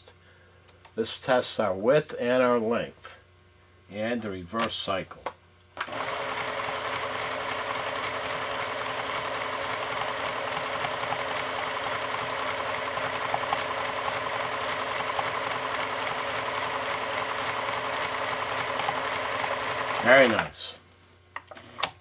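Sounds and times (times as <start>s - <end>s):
sewing machine running: 5.9s - 20.5s.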